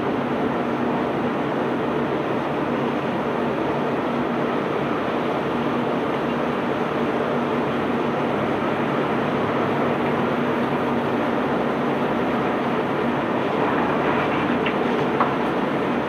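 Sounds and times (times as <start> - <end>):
machinery rumbling: 7.7 - 16.0.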